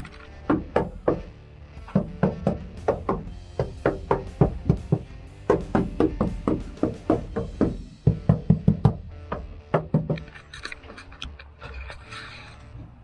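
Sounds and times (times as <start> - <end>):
hand knocking on metal panels: 0.5 - 10.2.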